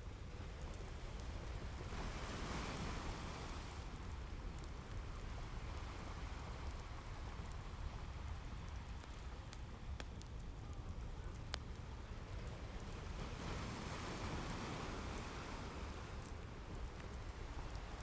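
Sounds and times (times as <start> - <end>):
crackling fireplace: 0.0 - 18.0
ocean waves washing ashore: 1.4 - 4.5, 12.5 - 18.0.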